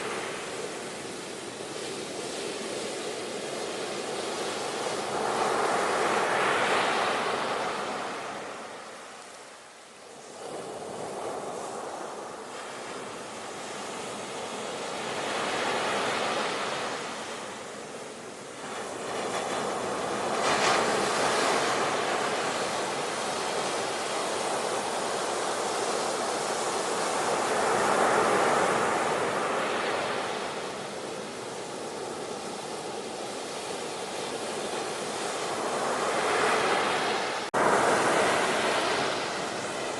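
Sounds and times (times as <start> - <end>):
ocean waves breaking: 10.2 - 39.9.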